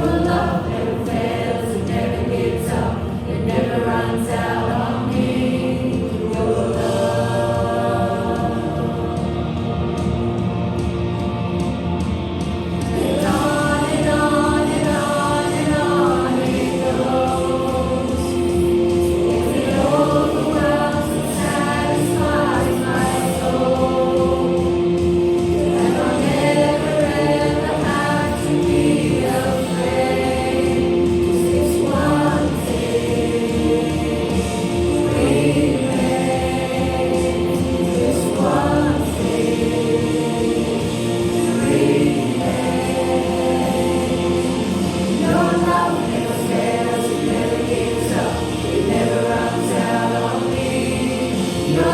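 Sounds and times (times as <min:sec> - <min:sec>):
group singing worship song: 0:00.0 - 0:51.9
musical accompaniment: 0:00.0 - 0:51.9.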